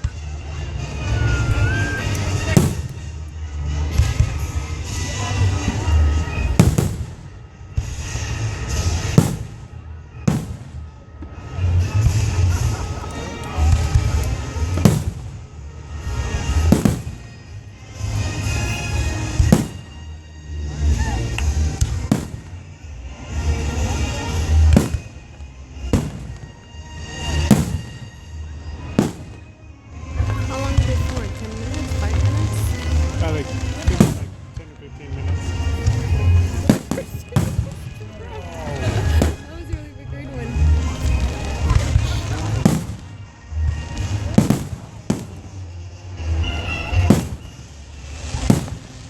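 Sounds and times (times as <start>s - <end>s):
fireworks bangs: 0.0s - 49.0s
low rumble of fireworks show: 0.0s - 49.0s
fireworks shells bursting: 16.2s - 17.5s, 18.4s - 20.0s, 35.5s - 38.0s, 46.4s - 49.0s.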